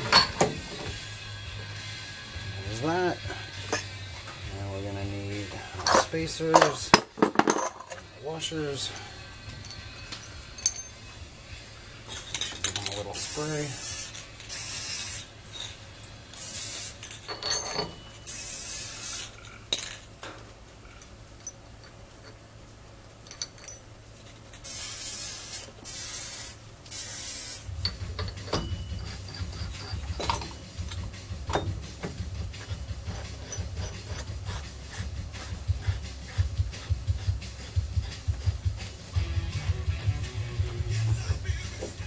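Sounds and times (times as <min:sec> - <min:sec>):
metal parts clicking and rubbing: 0:00.0 - 0:01.1, 0:02.6 - 0:04.4, 0:05.3 - 0:11.2, 0:12.1 - 0:42.0
aerosol spray can hissing: 0:13.1 - 0:15.3, 0:16.4 - 0:17.1, 0:18.3 - 0:19.4, 0:24.6 - 0:27.7, 0:34.0 - 0:39.9
low steady hum: 0:27.6 - 0:36.6.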